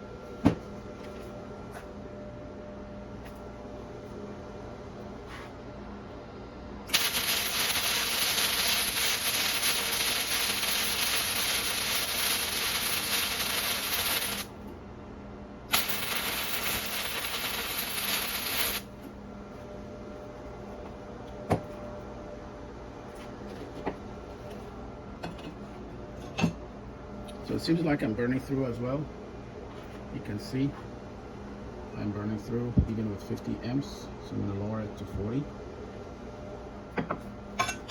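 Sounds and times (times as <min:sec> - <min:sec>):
welding arc crackling: 0:06.9 - 0:14.5, 0:15.7 - 0:18.9.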